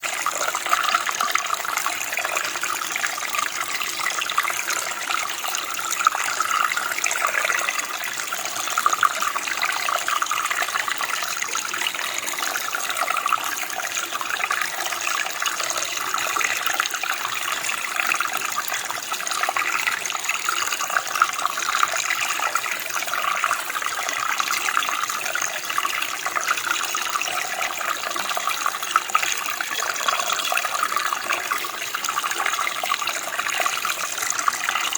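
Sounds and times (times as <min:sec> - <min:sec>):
water flowing like a stream: 0:00.0 - 0:34.9.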